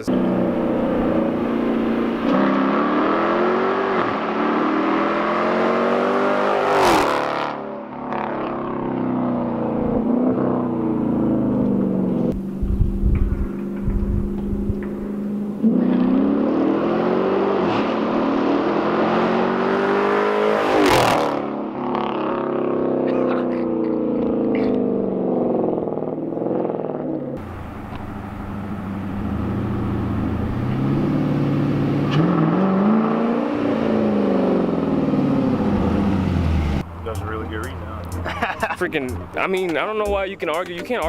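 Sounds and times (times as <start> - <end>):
car exhaust revving: 0.0 - 40.5.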